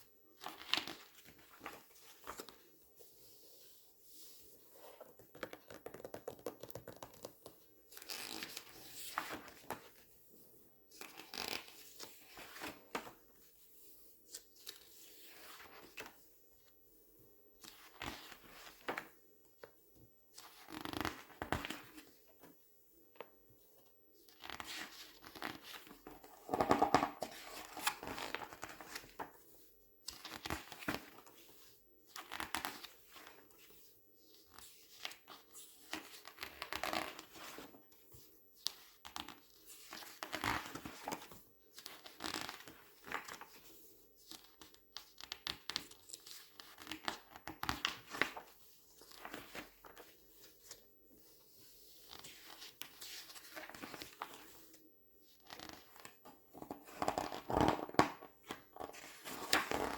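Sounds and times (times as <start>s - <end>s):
paper pages crinkling and rustling: 0.4s - 10.0s, 11.0s - 13.2s, 24.3s - 29.4s, 30.1s - 31.4s, 32.2s - 33.8s, 34.5s - 37.7s, 38.6s - 43.7s, 44.3s - 51.4s, 52.0s - 54.7s, 55.4s - 59.9s.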